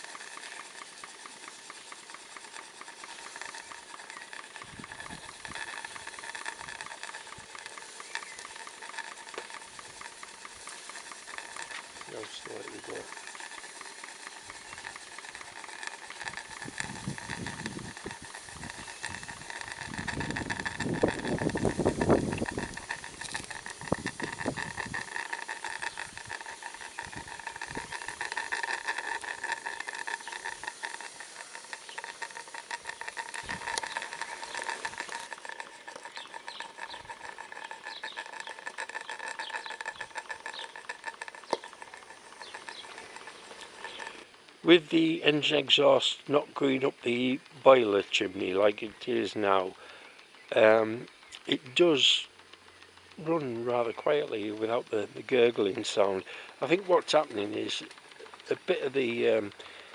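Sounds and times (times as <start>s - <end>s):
steam hiss: 0.0s - 36.0s, 55.8s - 57.8s
exhaust chuffing and gurgling: 0.0s - 59.9s
model steam engine ticking: 0.0s - 59.9s.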